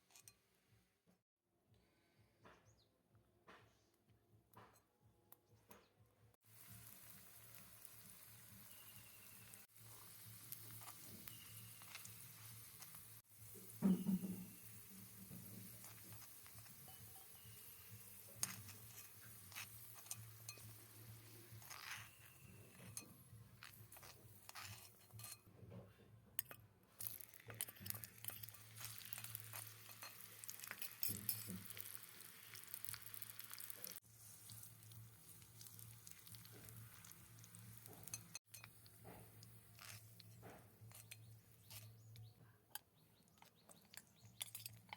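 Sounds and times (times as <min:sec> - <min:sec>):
light sizzle: 0:00.0 - 0:00.5, 0:06.4 - 0:25.6, 0:26.4 - 0:42.3
small utensils clinking in pot: 0:06.7 - 0:44.9.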